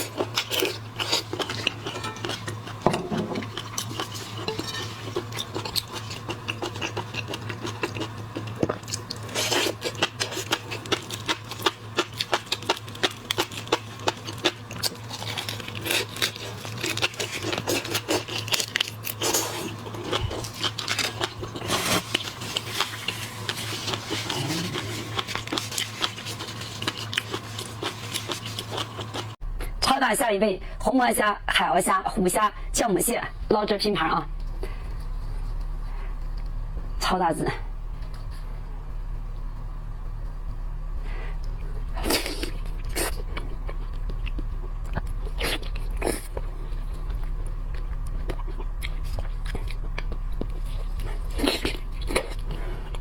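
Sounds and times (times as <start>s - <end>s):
chewing: 0.0s - 29.4s, 41.2s - 53.0s
steady low hum: 0.0s - 53.0s.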